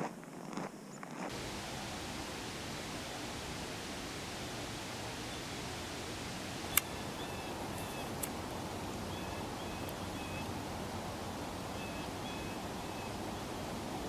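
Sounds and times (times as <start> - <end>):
small songbird chirping: 6.6 - 13.9.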